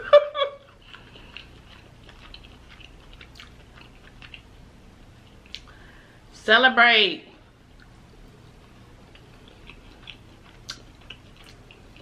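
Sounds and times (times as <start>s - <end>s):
chewing with wet clicks: 0.6s - 4.6s, 5.2s - 5.8s, 7.7s - 8.0s, 8.6s - 12.0s.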